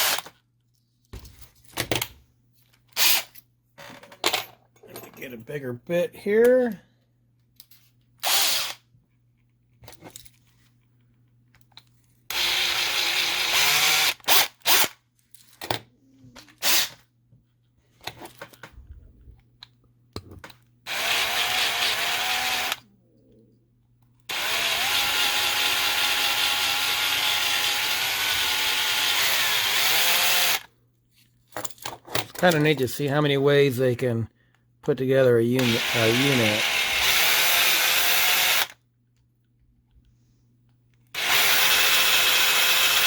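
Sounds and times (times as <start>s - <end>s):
power drill drilling metal: 0.0s - 0.3s, 8.2s - 8.8s, 12.3s - 14.9s, 20.9s - 22.8s, 24.3s - 30.7s, 35.6s - 38.8s, 41.2s - 43.0s.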